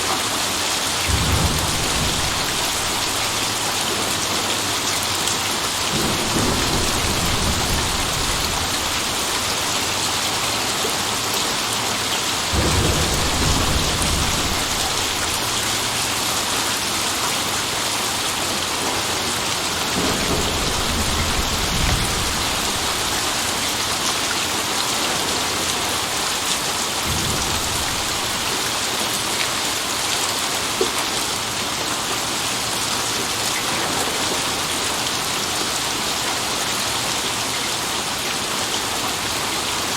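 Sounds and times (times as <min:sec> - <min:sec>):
heavy rain: 0:00.0 - 0:39.9
thunder rumbling: 0:01.0 - 0:10.1, 0:12.5 - 0:17.8, 0:18.8 - 0:29.3.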